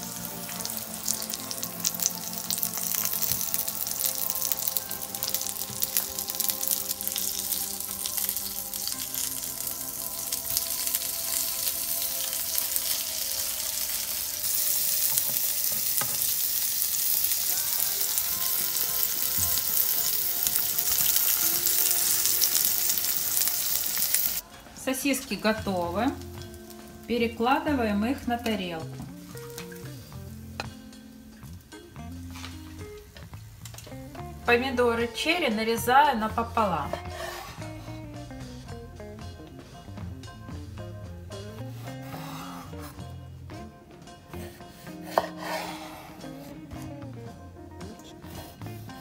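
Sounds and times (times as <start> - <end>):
food sizzling in oil: 0.0 - 38.7.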